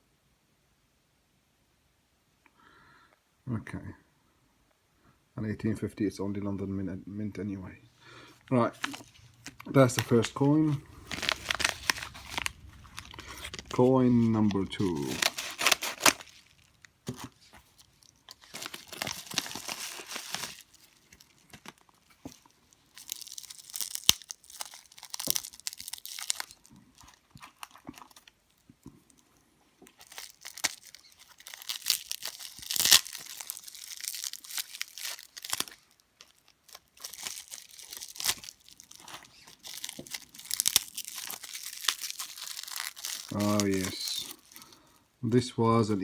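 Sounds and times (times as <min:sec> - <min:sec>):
packaging tearing and crinkling: 0:08.6 - 0:29.2, 0:29.8 - 0:44.8.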